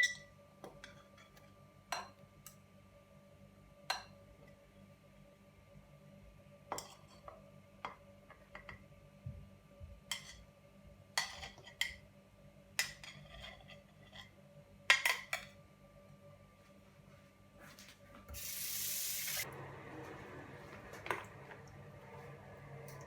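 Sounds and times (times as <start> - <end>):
dishes and cutlery clinking: 11.2 - 12.0, 12.8 - 15.6.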